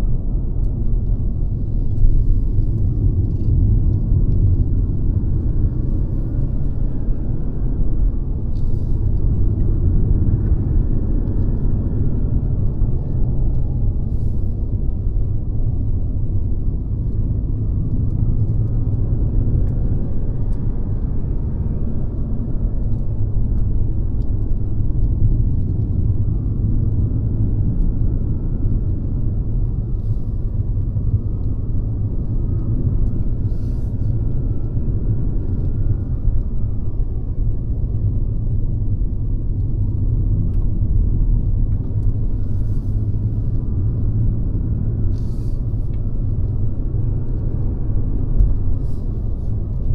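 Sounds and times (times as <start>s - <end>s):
car engine rumble: 0.0s - 49.9s.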